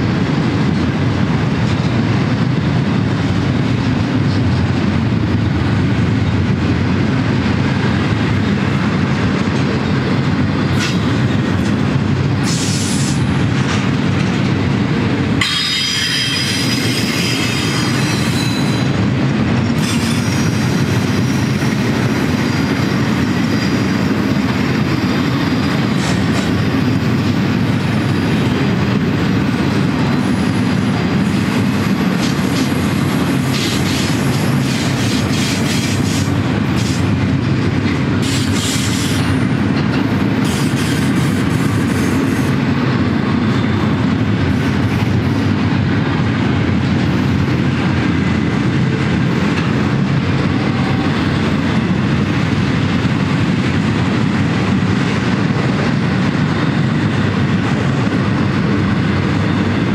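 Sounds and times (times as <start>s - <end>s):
train wheels rumbling on rail: 0.0s - 59.9s
high wheel squeal: 15.4s - 19.0s.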